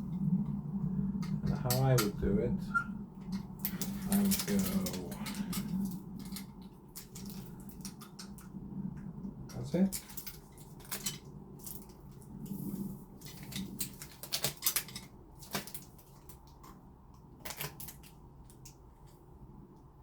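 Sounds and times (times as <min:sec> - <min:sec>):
lock parts clicking and tapping: 0:13.2 - 0:16.8.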